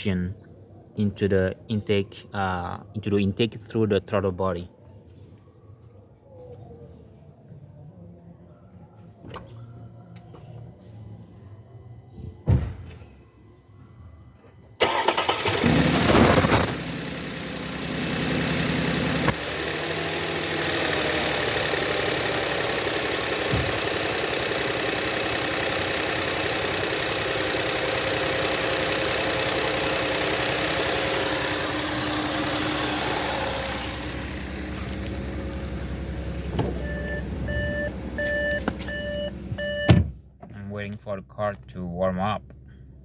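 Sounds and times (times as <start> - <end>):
car engine starting and idling: 14.8 - 40.3.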